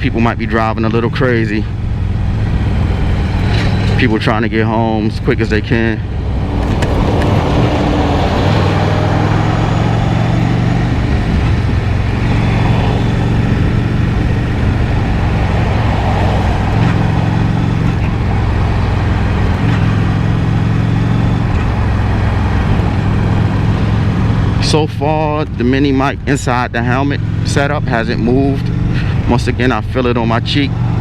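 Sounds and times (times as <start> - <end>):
motorcycle engine running: 0.0 - 5.2, 6.1 - 31.0
wind noise: 6.1 - 24.6.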